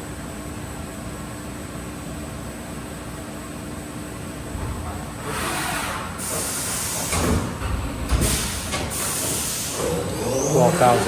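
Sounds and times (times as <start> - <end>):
machine hum: 4.4 - 11.0
loud hissing bursts: 5.2 - 7.5, 8.2 - 11.0.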